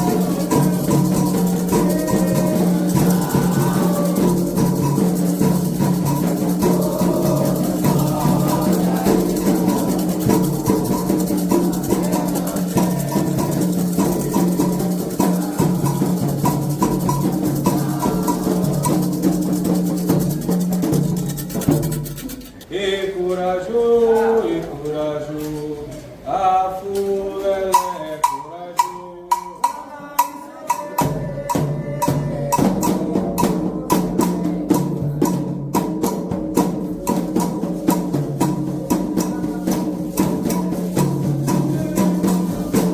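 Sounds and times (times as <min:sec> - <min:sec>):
solo voice singing: 0:00.0 - 0:19.5, 0:22.7 - 0:35.3, 0:38.9 - 0:42.9
group chorus singing: 0:00.0 - 0:20.2, 0:22.7 - 0:25.3, 0:26.3 - 0:35.0, 0:36.6 - 0:42.9
bell: 0:00.0 - 0:21.4
sharp drum strokes: 0:00.0 - 0:22.6, 0:27.6 - 0:42.9
drumming: 0:00.0 - 0:22.7, 0:27.0 - 0:42.9.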